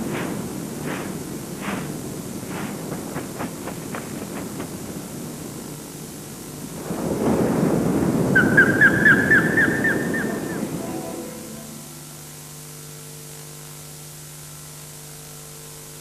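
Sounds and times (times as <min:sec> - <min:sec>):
low rumbling noise: 0:00.0 - 0:13.6
faint steady hum: 0:00.0 - 0:16.0
bird whistled chirps: 0:08.4 - 0:11.9.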